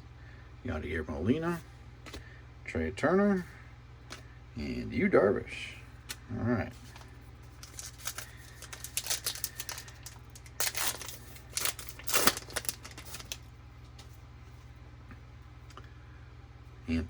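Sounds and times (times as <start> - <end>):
steady low hum: 0.0 - 17.0
trading cards flicking and crinkling: 2.0 - 2.3, 6.8 - 14.2.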